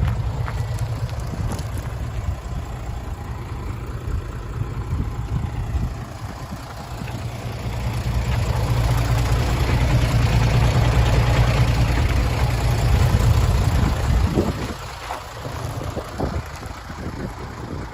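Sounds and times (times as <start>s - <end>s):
diesel truck engine running: 0.0s - 17.9s.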